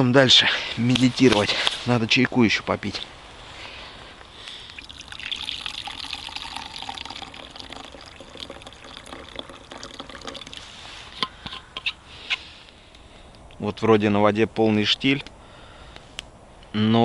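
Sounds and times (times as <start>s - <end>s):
tea pouring into a cup: 4.6s - 10.8s.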